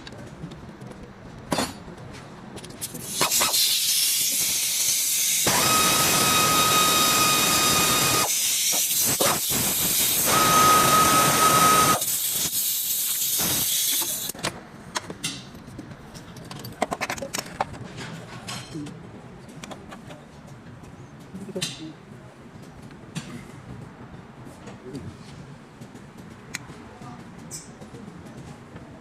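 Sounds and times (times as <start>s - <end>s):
compressed air hissing: 3.0s - 5.6s, 8.1s - 14.3s.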